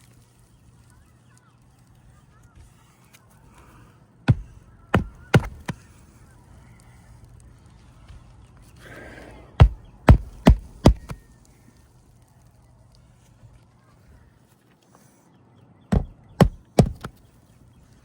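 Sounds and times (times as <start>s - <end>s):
hammer driving nails into shingles: 4.3s - 5.8s, 9.6s - 11.2s, 15.9s - 17.1s.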